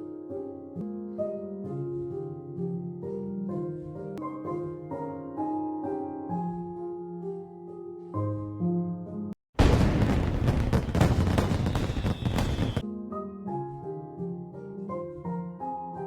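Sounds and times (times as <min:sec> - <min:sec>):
gentle piano music: 0:00.0 - 0:09.4, 0:12.8 - 0:16.0.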